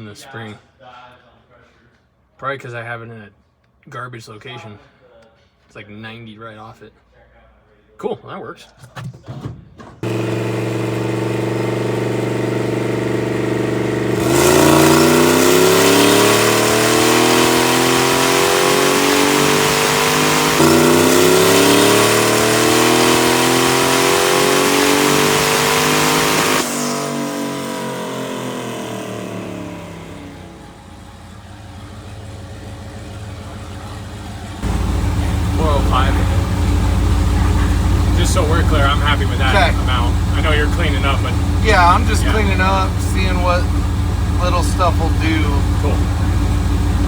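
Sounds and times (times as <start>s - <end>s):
car engine revving under load: 10.0s - 47.0s.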